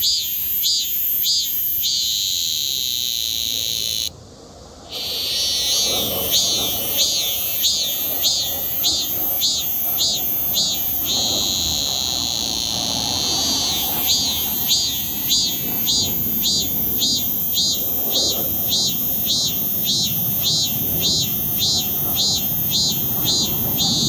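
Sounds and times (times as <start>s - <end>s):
cicadas droning: 0.0s - 24.0s.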